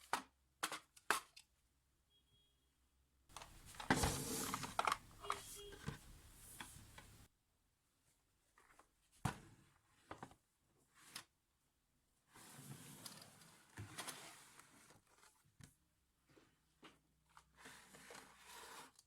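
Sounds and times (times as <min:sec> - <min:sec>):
rustling: 0:03.3 - 0:07.3.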